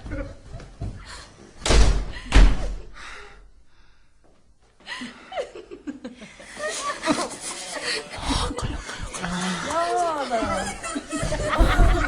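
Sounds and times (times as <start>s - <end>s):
heavy thud: 11.6s - 12.0s
person chuckling and gasping: 11.6s - 12.0s.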